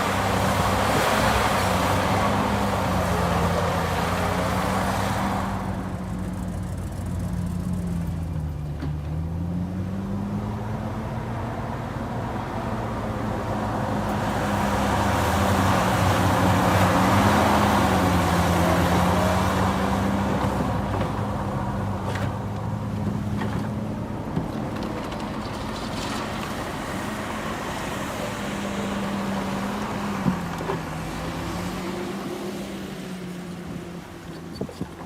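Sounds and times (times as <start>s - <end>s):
diesel engine running under load: 0.0s - 9.6s.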